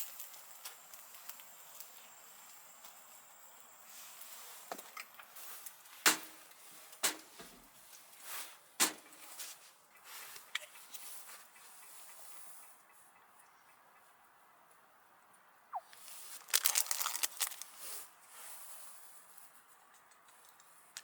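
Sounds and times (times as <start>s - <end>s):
handling noise: 16.4s - 17.6s.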